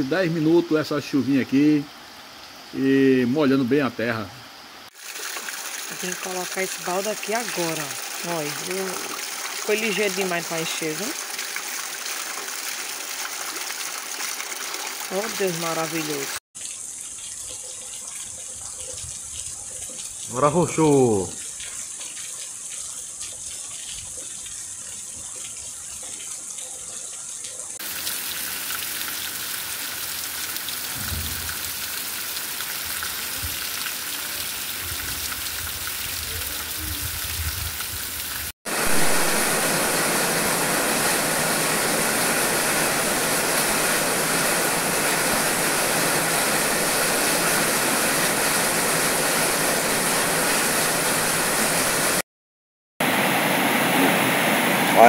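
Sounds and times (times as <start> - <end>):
heavy rain on leaves: 4.9 - 16.4, 27.8 - 52.2
steady rain falling: 4.9 - 52.2
low bumps: 30.9 - 31.8.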